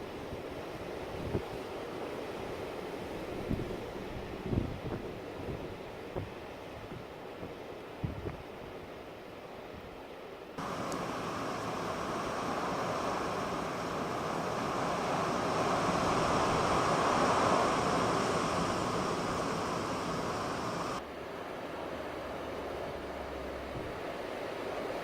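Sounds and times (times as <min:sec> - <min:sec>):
strong storm wind: 0:00.0 - 0:08.4, 0:10.6 - 0:21.0.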